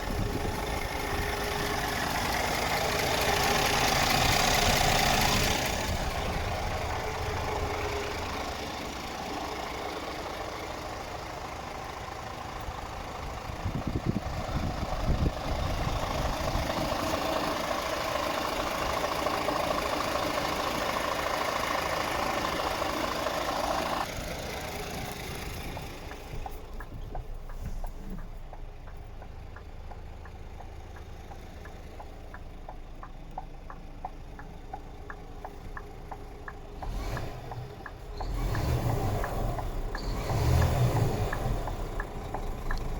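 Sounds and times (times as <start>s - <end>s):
truck diesel engine idling: 0.0s - 42.9s
light regular ticking: 24.7s - 42.9s.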